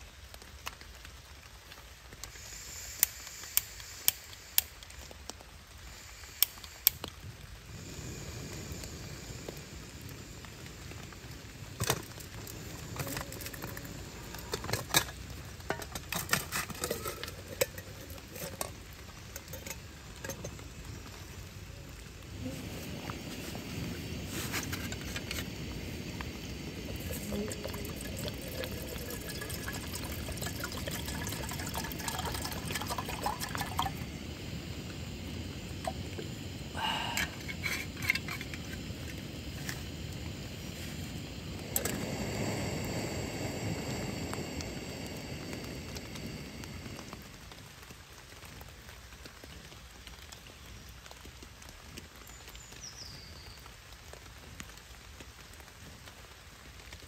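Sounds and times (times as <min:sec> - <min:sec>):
rain on tarp and foliage: 0:00.0 - 0:57.0.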